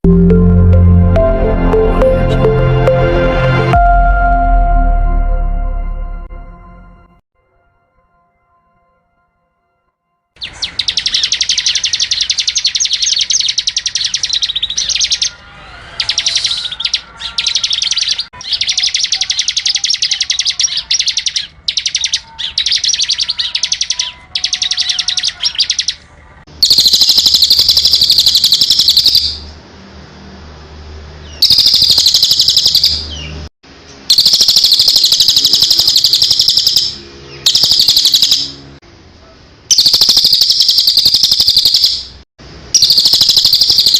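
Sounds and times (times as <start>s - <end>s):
songbird twittering: 10.4s - 26.0s, 26.6s - 29.4s, 31.2s - 33.4s, 34.1s - 38.6s, 39.7s - 42.2s, 42.8s - 43.9s.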